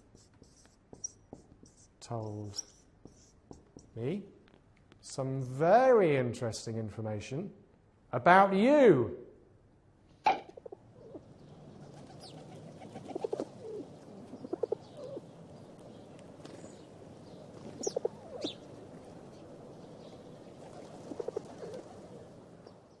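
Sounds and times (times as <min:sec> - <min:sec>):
small birds chirping: 0:00.0 - 0:04.1, 0:10.6 - 0:23.0
pigeons cooing: 0:10.3 - 0:15.3, 0:17.6 - 0:18.7, 0:20.6 - 0:22.4.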